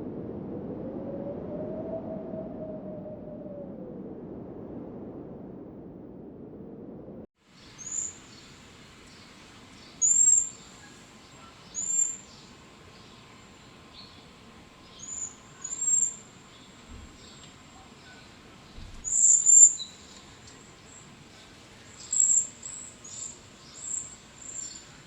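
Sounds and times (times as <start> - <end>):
faint high whine: 0.0 - 25.0
bird chirping: 7.6 - 21.1, 21.8 - 25.0.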